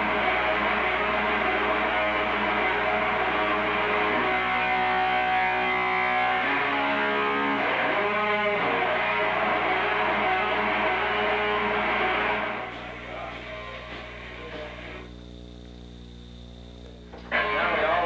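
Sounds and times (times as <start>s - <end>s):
electric guitar with pitch bends: 0.0s - 15.4s, 16.8s - 18.0s.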